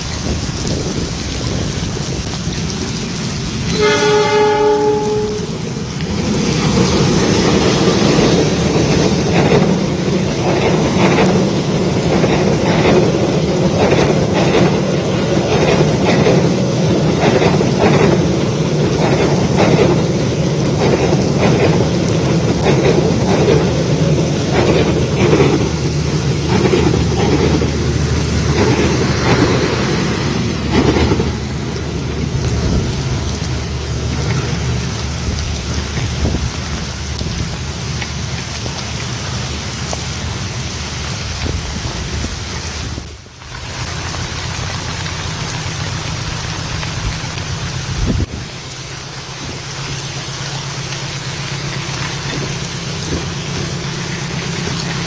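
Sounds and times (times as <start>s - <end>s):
heavy rain: 0.0s - 55.0s
train horn: 3.7s - 5.7s
train wheels clacking on rail joints: 6.0s - 33.2s.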